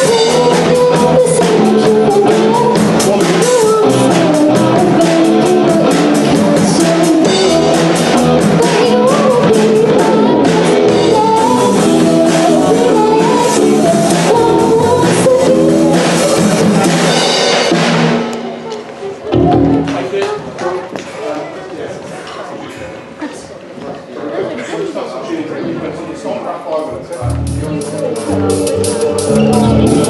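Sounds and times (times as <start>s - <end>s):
person singing: 0.0s - 17.2s, 18.3s - 20.3s, 27.2s - 30.0s
electric guitar: 0.0s - 20.1s, 27.2s - 30.0s
drum kit: 0.0s - 20.3s, 27.2s - 30.0s.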